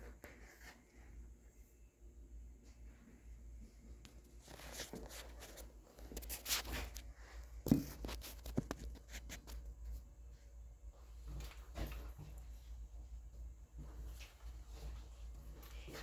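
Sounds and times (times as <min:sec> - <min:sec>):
scraping and handling noises: 0:04.1 - 0:10.1.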